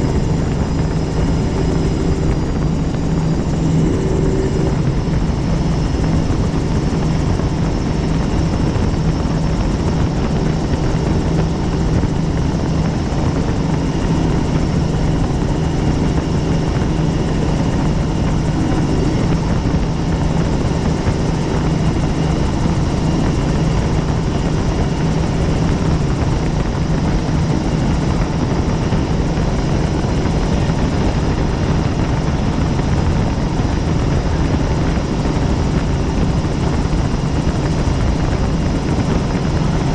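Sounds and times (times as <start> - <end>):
helicopter running: 0.0 - 39.9.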